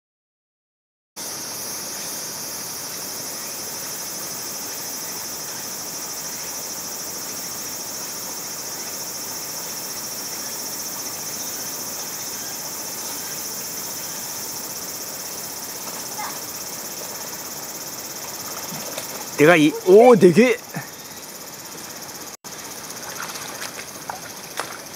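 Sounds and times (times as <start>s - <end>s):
insects droning: 1.2s - 24.9s
flowing mountain stream: 12.6s - 20.9s, 21.6s - 24.9s.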